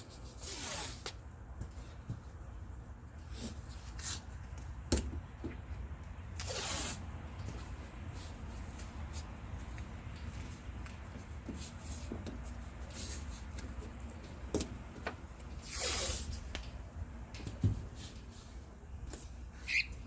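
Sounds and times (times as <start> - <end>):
tape ripped off roll: 0.4 - 1.2, 6.4 - 7.0, 15.6 - 16.4.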